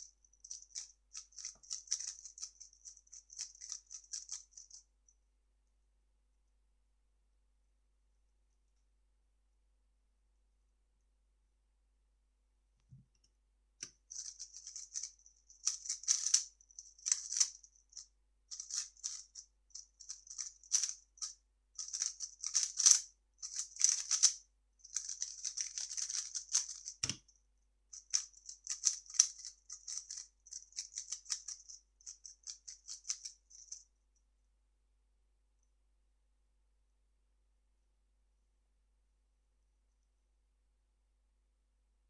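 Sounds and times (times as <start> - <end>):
puzzle cube clicking and rattling: 0.5 - 4.8, 14.1 - 17.6, 18.5 - 27.3, 28.0 - 33.8.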